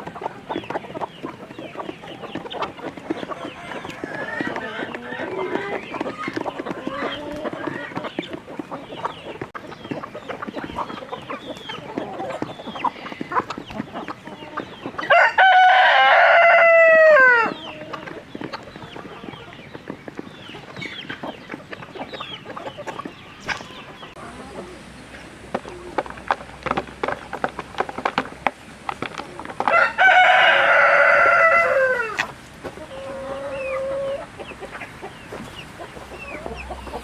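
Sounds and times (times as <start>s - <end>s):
chickens clucking and chirping: 0.0s - 37.0s
rooster crowing: 15.1s - 17.6s, 29.7s - 32.2s.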